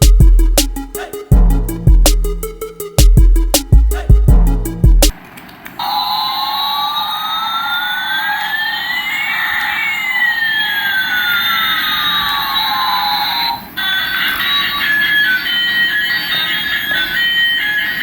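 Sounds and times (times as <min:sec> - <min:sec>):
electronic siren-like sweep: 0:00.0 - 0:05.1, 0:05.8 - 0:18.0.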